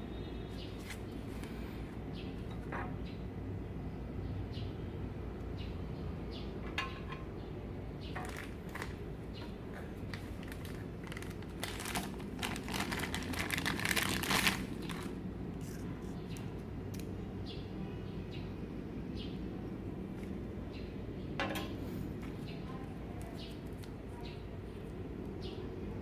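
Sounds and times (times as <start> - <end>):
crinkling rustle: 0.5 - 1.8, 8.1 - 17.0, 22.1 - 24.3
light clicks and crackle: 21.6 - 24.0.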